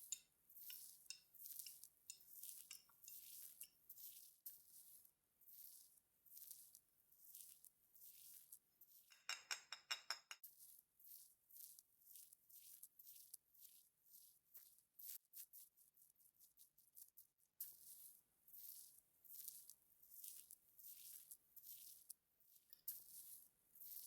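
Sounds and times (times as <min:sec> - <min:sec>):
soft makeup brush strokes: 0:00.0 - 0:09.1, 0:10.5 - 0:24.0
small ticks: 0:18.6 - 0:22.9.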